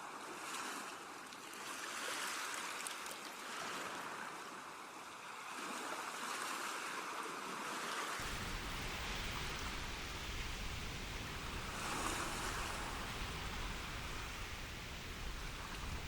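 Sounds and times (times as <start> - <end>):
low rumble: 8.2 - 16.0
sea waves washing: 8.2 - 16.0.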